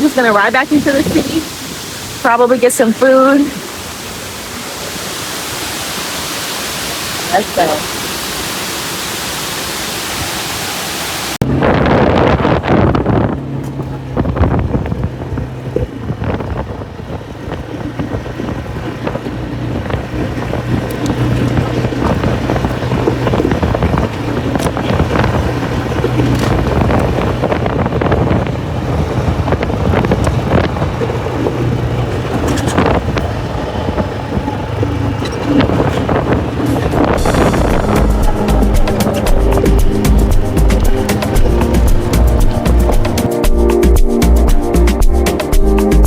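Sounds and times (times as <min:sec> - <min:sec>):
atv engine running: 0:00.0 - 0:09.8, 0:11.4 - 0:46.0
wind buffeting microphone: 0:00.0 - 0:46.0
knocks and rattles: 0:17.4 - 0:45.2.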